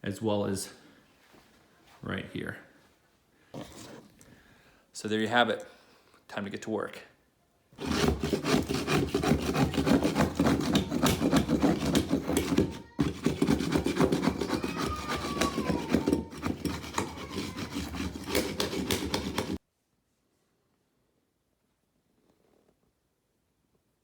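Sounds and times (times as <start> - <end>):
scraping and rubbing on carpet: 7.8 - 19.6.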